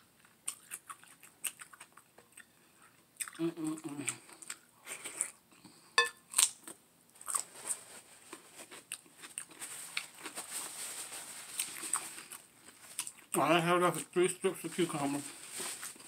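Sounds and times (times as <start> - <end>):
wet mouth clicks and chewing: 0.2 - 3.4
soft hiss: 13.8 - 16.0.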